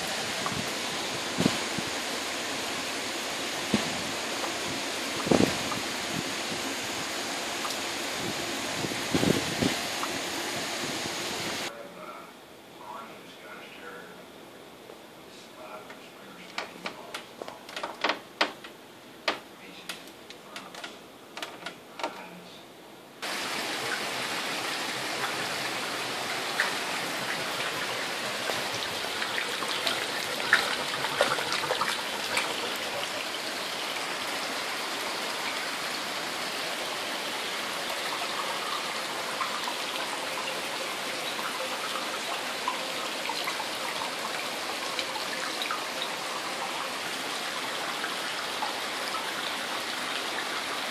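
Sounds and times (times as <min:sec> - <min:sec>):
water drips and splashes: 0:00.0 - 0:11.7, 0:23.2 - 0:50.9
water rushing: 0:00.0 - 0:11.7, 0:23.2 - 0:50.9.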